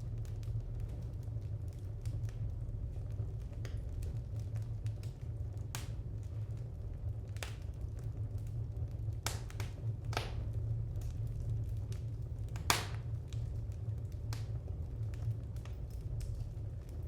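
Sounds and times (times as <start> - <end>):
steady low rumble: 0.0 - 17.0
wood fire crackling: 0.0 - 17.0
fire pops: 3.0 - 17.0.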